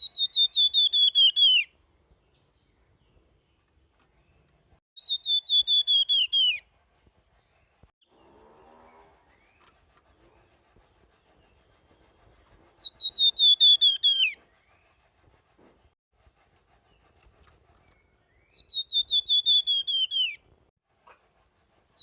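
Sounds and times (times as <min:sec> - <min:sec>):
songbird singing high whistled notes: 0:00.0 - 0:02.7, 0:05.0 - 0:06.6, 0:12.8 - 0:14.8, 0:17.8 - 0:20.4.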